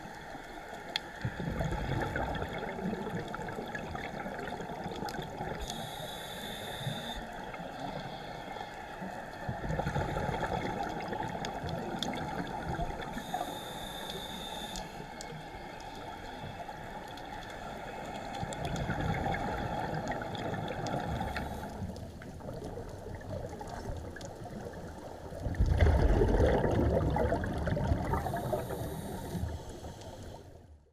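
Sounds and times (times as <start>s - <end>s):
gurgling exhaled bubbles: 1.2s - 5.6s, 9.5s - 13.3s, 18.5s - 29.8s
regulator inhalation hiss: 5.6s - 8.4s, 13.1s - 15.2s, 28.1s - 30.6s.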